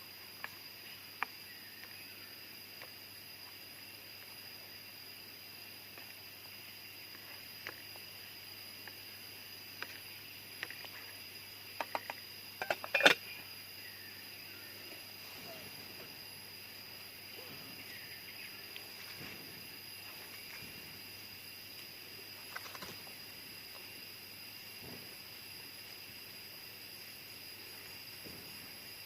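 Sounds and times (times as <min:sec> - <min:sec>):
jungle insects droning: 0:00.0 - 0:29.0
sharp clicks and knocks: 0:11.8 - 0:13.2.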